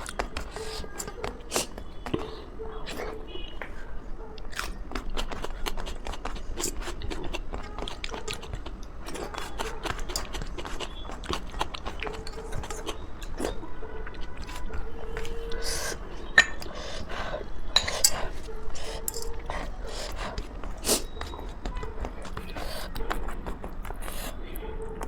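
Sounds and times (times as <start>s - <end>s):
chewing food: 0.0s - 25.0s.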